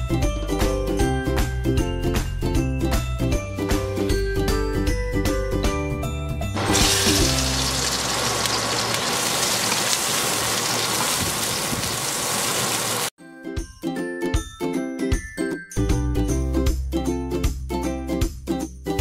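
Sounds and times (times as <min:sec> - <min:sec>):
background music: 0:00.0 - 0:08.0, 0:13.2 - 0:19.0
onions sizzling in fat: 0:06.6 - 0:13.1.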